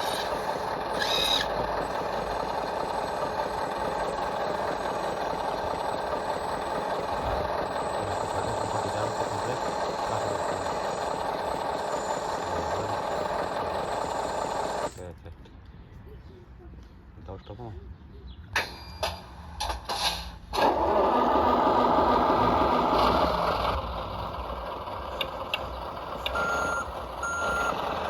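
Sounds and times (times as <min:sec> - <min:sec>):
electric motor whirring: 0:00.0 - 0:15.0.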